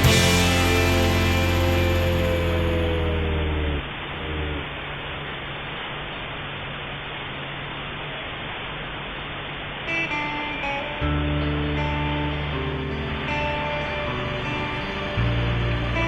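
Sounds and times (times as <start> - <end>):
song: 0.0 - 3.3.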